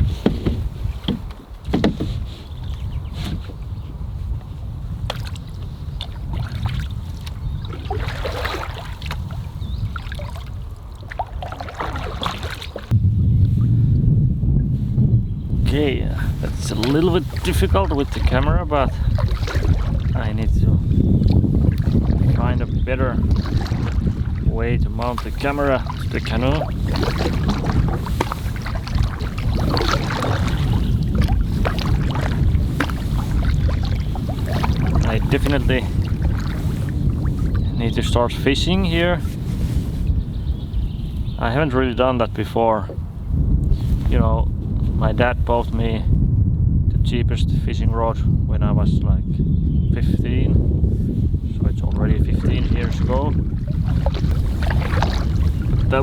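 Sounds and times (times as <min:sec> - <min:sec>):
paddle splashing in water: 0:00.0 - 0:12.9, 0:16.2 - 0:40.2, 0:51.9 - 0:56.0
light knocks on hull: 0:00.2 - 0:03.6, 0:05.0 - 0:09.2, 0:23.2 - 0:24.4, 0:25.0 - 0:37.7, 0:52.4 - 0:56.0
low microphone rumble: 0:02.7 - 0:56.0.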